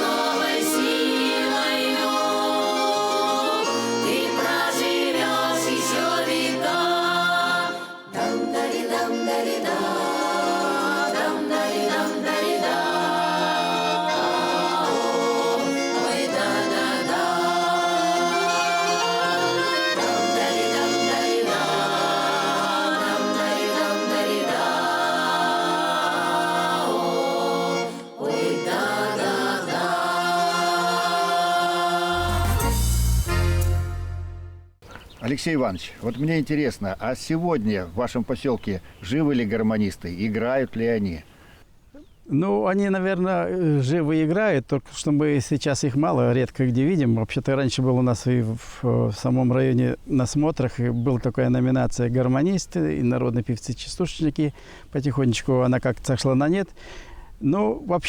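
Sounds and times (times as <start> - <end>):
folk choir singing: 0.0 - 34.5
button accordion: 0.0 - 34.8.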